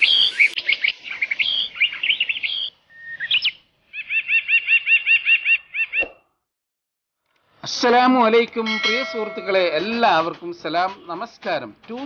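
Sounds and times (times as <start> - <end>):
bird trill: 0.0 - 6.1
birds chirping: 0.0 - 6.2.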